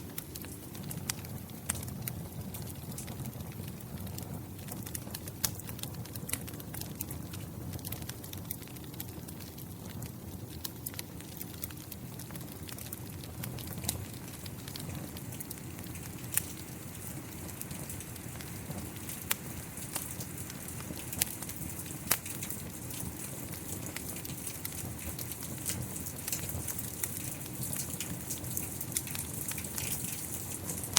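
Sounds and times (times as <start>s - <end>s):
wood fire crackling and popping: 0.0s - 30.9s.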